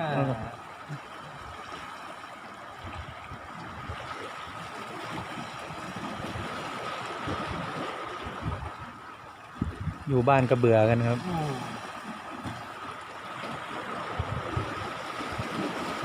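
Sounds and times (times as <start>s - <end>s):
sea waves: 0.0s - 16.0s
wind buffeting microphone: 5.0s - 10.4s, 14.0s - 16.0s.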